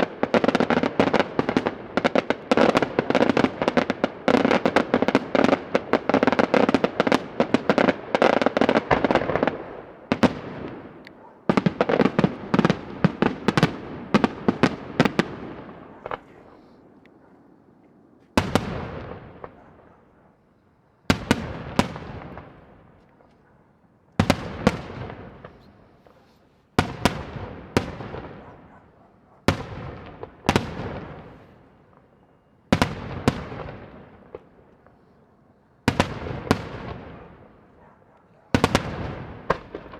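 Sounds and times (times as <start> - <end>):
fireworks bangs echoing: 0.0 - 17.5, 18.2 - 20.3, 21.1 - 23.3, 24.2 - 35.1, 35.8 - 39.9.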